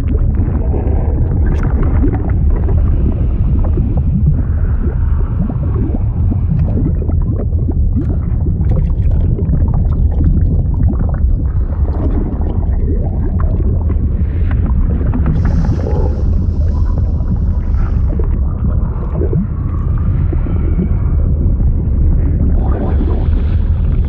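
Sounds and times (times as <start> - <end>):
liquid churning rumble: 0.0 - 24.0
liquid gurgles and pops: 0.0 - 24.0.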